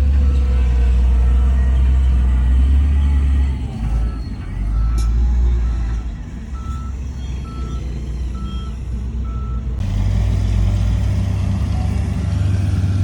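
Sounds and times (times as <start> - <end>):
reversing alarm beeping: 0.0 - 9.7
diesel engine running: 0.0 - 13.0.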